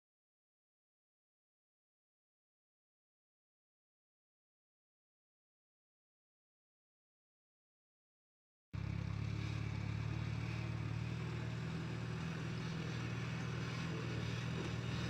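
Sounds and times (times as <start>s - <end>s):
engine running: 8.8s - 15.0s.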